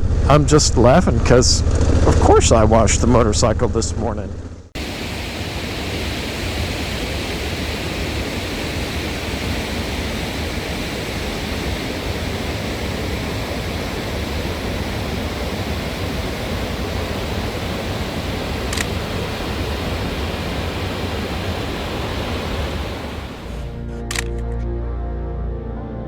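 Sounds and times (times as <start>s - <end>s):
wind rush: 4.8s - 23.8s.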